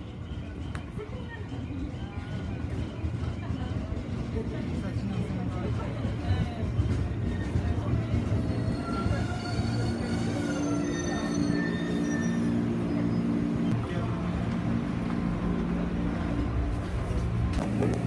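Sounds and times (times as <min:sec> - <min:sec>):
train brakes squealing: 0:06.6 - 0:13.7.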